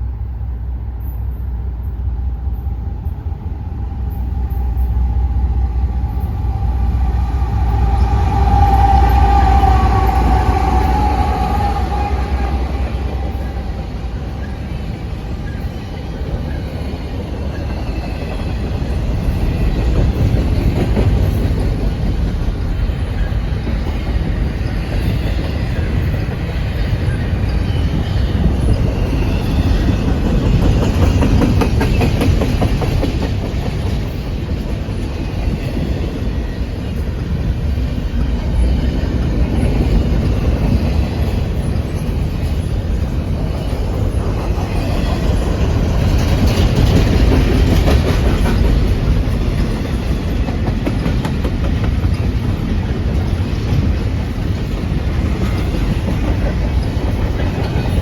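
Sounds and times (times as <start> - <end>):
freight train wheels rumbling: 0.0 - 58.0
high-pitched wheel squeals: 4.1 - 14.8
wheels clattering over rail joints: 12.0 - 58.0.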